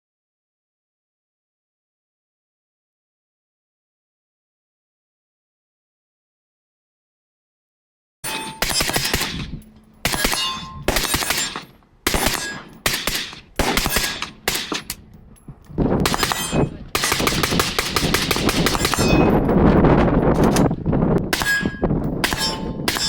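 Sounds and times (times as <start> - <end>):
rifle gunfire with echoes: 8.6 - 14.9, 16.0 - 19.4.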